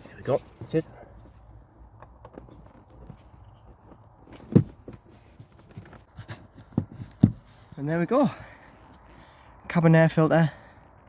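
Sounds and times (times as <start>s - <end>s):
light knocks and taps: 6.6s - 7.5s.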